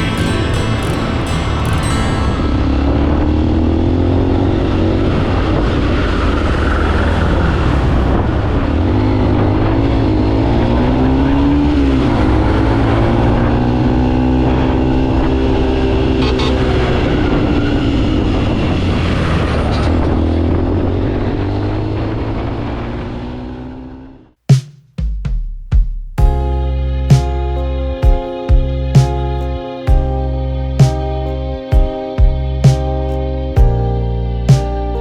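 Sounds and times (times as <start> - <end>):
wind and road noise: 0.0 - 24.3.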